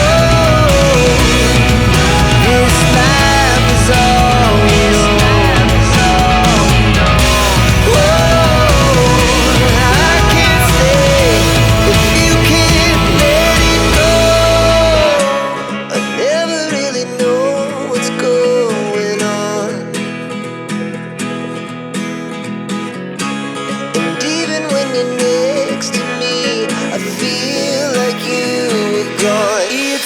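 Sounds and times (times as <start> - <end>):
deep bass: 0.0 - 15.2
pop music: 0.0 - 19.8, 24.0 - 30.0
strummed acoustic guitar: 0.0 - 30.0.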